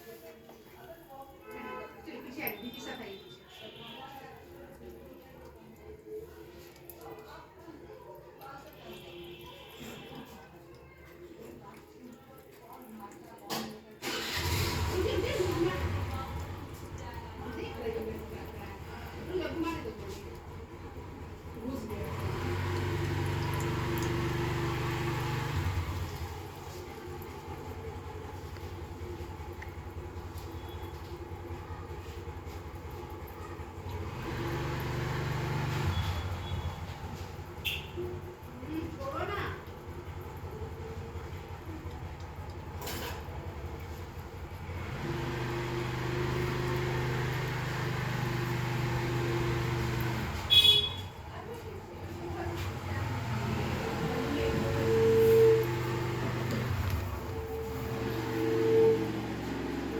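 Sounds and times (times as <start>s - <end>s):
vehicle engine humming: 39.7s - 51.0s, 51.6s - 59.9s.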